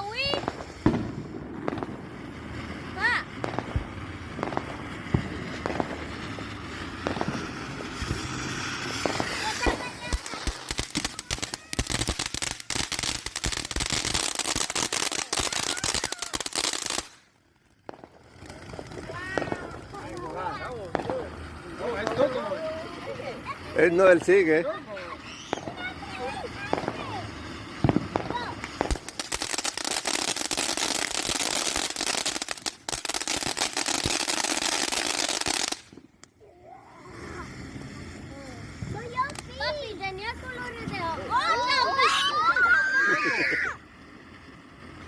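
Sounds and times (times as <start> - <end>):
firework crackling: 0.0 - 45.0.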